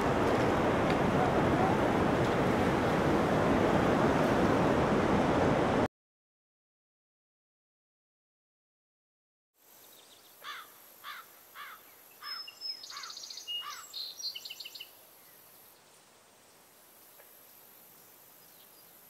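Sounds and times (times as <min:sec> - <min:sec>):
faint outdoor ambience: 0:00.0 - 0:05.9, 0:09.6 - 0:19.0
higher bird trills: 0:10.4 - 0:14.1.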